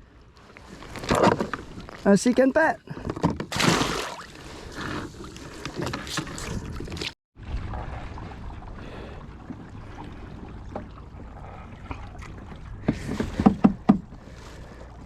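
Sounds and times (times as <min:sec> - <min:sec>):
water splashing and dripping: 0:03.5 - 0:04.6.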